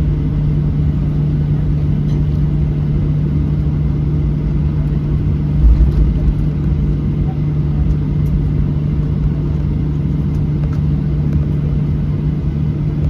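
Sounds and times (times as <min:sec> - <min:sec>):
airplane cabin rumble: 0:00.0 - 0:13.0
constant low hum: 0:00.0 - 0:13.0
low bump: 0:05.5 - 0:06.9.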